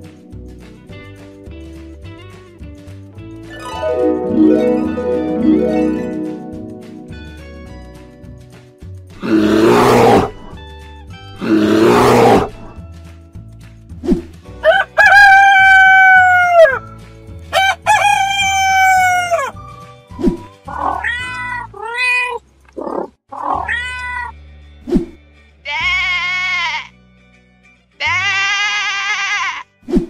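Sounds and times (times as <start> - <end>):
background music: 0.0 - 22.0, 23.4 - 30.0
rooster crowing: 14.6 - 16.8, 17.5 - 19.5
cat meowing: 20.7 - 24.4
sheep bleating: 25.6 - 27.0, 28.0 - 29.8.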